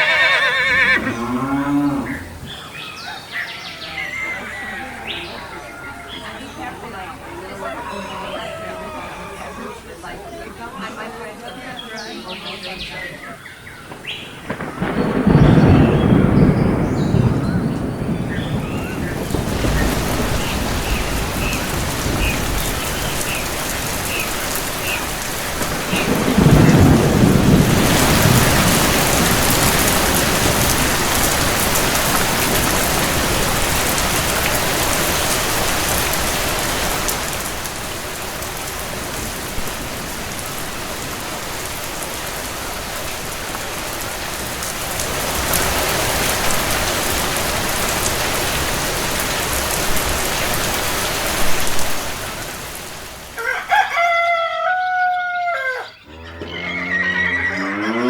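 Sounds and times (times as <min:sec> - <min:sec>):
heavy rain hissing: 0:09.8 - 0:53.5
low roll of thunder: 0:13.8 - 0:41.8.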